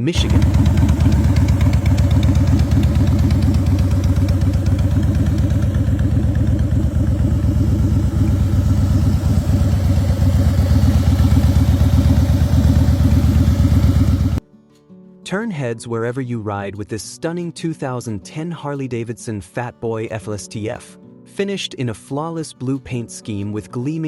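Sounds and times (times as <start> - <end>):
motorcycle engine idling: 0.2 - 14.4.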